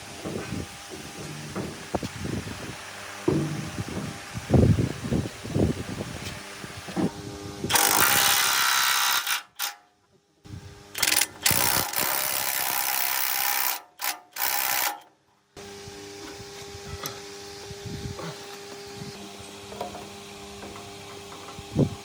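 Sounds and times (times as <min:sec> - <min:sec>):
power tool running: 0:00.0 - 0:09.8, 0:10.5 - 0:15.0, 0:15.6 - 0:22.0.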